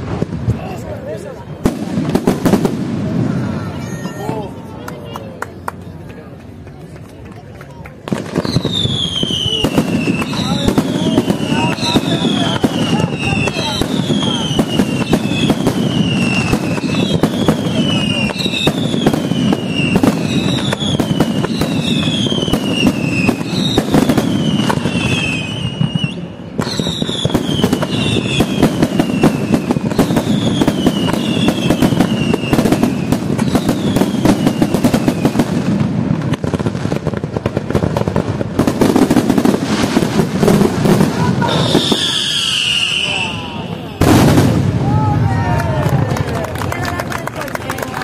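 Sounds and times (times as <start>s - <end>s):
strong firework burst: 0.0s - 4.4s, 8.1s - 46.4s
fireworks bursting and crackling: 0.0s - 48.0s
fireworks falling whistles: 8.1s - 37.7s, 38.7s - 44.8s.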